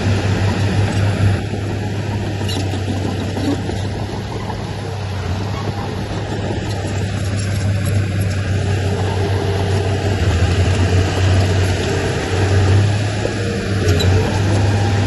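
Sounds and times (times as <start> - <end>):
heavy diesel engine droning: 0.0 - 15.0.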